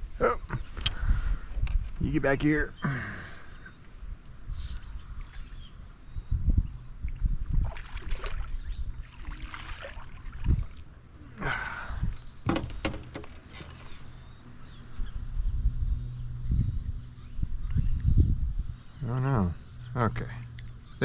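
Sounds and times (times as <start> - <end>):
birds chirping faintly: 0.0 - 21.0
water sloshing: 7.6 - 11.1
knocks and rubbing on kayak: 12.5 - 13.9.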